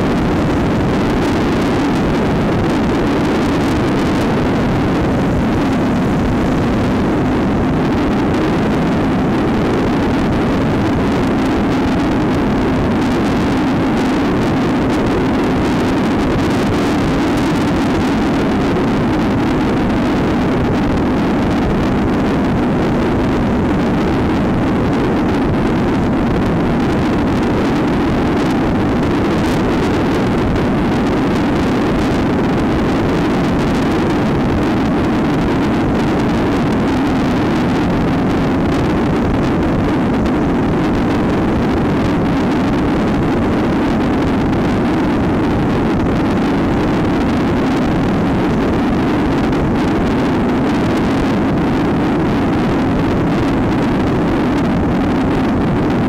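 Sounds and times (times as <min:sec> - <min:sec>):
wind noise on microphone: 0:00.0 - 0:56.0.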